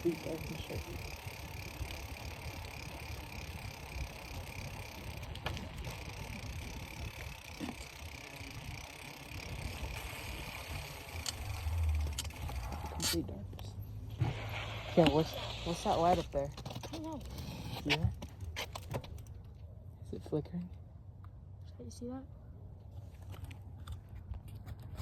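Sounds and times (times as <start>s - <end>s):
bicycle rumbling: 0.0s - 19.7s.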